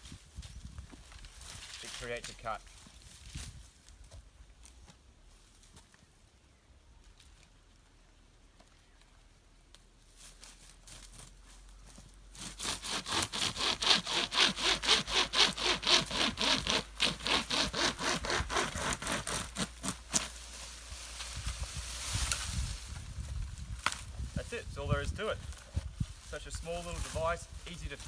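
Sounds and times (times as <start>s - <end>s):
pocket chainsaw rasping through wood: 12.3s - 20.3s.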